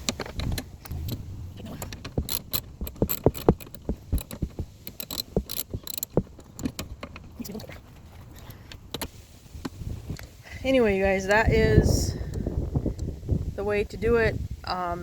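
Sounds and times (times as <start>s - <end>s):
wrench clicking on bolts: 1.8s - 7.4s.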